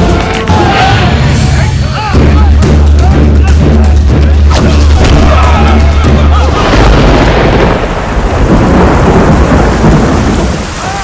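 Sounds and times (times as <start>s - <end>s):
heavy rain hissing: 4.6s - 11.0s
thunder rumbling: 4.6s - 11.0s.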